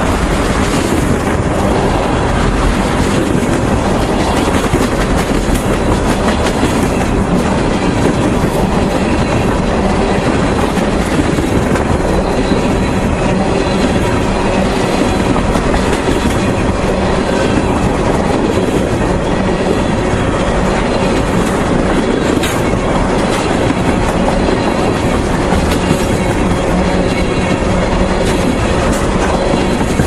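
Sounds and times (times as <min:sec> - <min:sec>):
freight train wheels rumbling on rails: 0:00.0 - 0:30.0.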